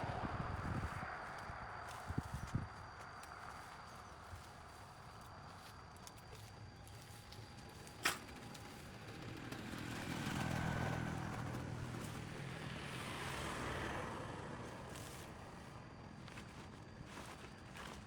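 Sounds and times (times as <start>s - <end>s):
road vehicle passing by: 0.0s - 2.0s, 8.3s - 16.2s.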